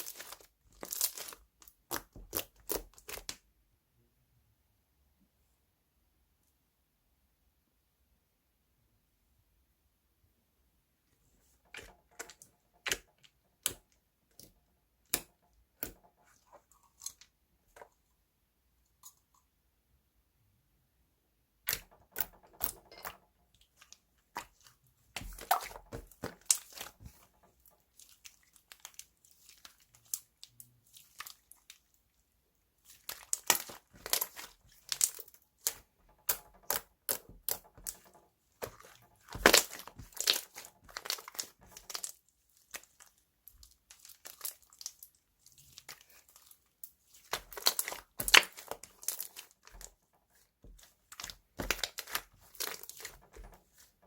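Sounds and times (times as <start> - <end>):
slime clicking and crackling: 0.0 - 3.4, 21.7 - 31.9, 32.9 - 50.0, 50.7 - 53.9.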